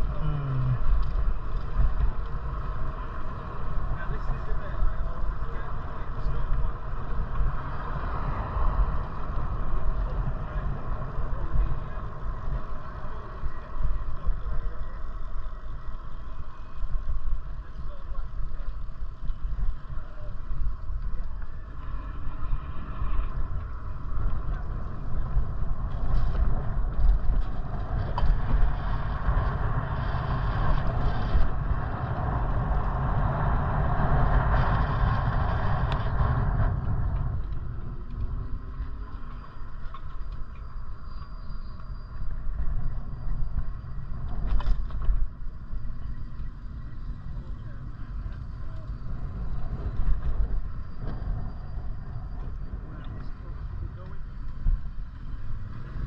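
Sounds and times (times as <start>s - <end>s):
road noise: 0.0s - 56.0s
wind rumbling on microphone: 0.0s - 56.0s.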